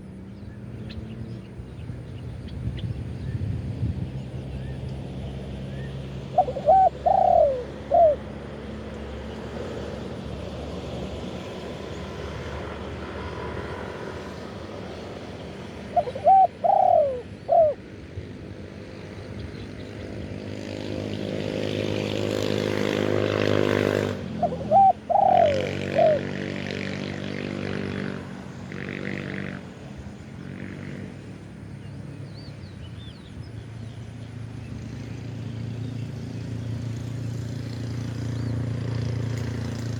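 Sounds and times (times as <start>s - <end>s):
vehicle engine hum: 0.0s - 39.9s
dove cooing: 6.2s - 8.5s, 15.7s - 18.0s, 24.4s - 26.7s.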